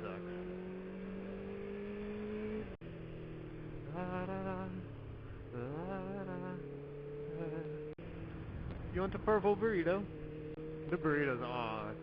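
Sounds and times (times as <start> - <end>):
motorcycle engine cruising: 0.0 - 12.0
short wavering hum: 3.8 - 8.0.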